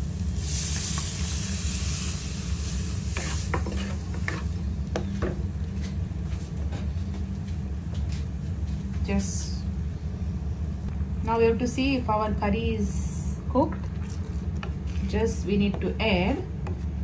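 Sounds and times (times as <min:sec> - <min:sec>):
liquid sizzling in hot oil: 0:00.0 - 0:04.6
low hum: 0:00.0 - 0:17.0.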